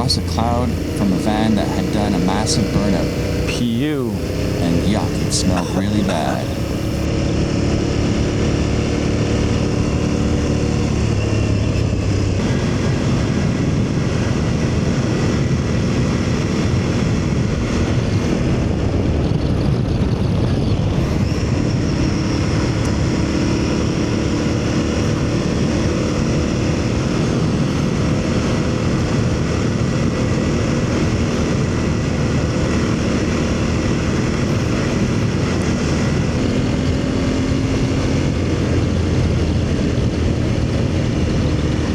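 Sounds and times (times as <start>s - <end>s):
motorcycle engine running: 0.0s - 7.1s.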